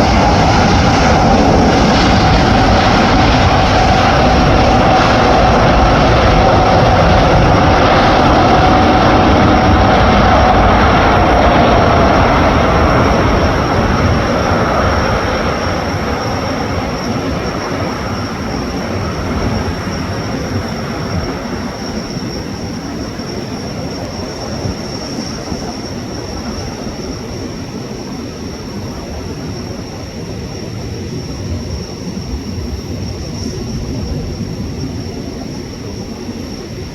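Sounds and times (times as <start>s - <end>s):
jet engine whine: 0.0s - 36.9s.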